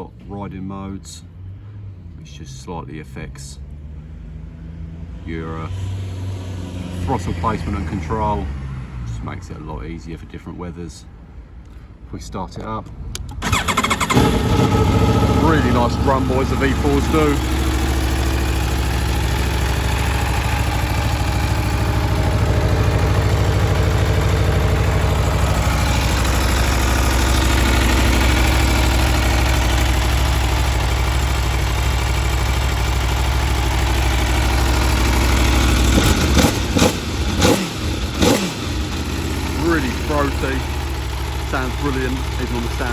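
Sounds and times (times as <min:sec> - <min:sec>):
motorcycle engine idling: 0:13.2 - 0:42.9.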